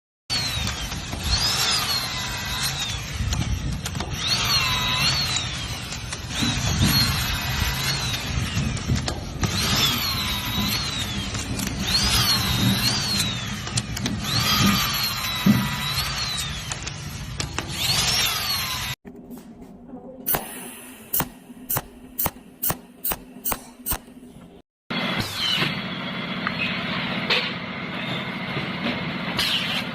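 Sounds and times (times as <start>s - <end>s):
power tool motor whining: 0.3s - 19.0s.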